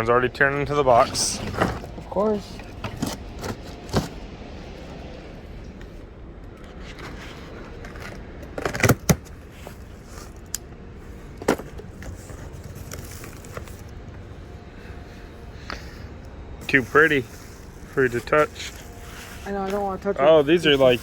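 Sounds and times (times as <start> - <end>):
box tearing and rustling: 2.6 - 4.2, 6.7 - 10.4.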